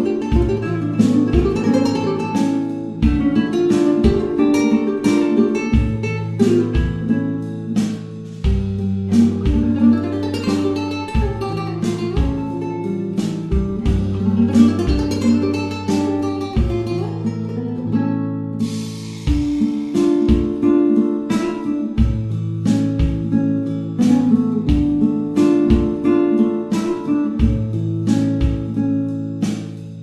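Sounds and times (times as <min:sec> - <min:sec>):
steady bass line: 0:00.0 - 0:04.4, 0:05.6 - 0:17.8, 0:22.0 - 0:25.1, 0:27.4 - 0:28.8
acoustic guitar plucked and strummed: 0:00.0 - 0:30.0.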